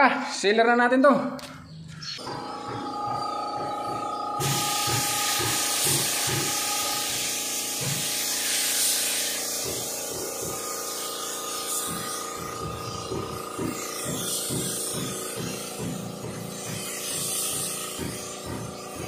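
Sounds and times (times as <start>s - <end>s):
spray gun hissing: 4.4s - 19.0s.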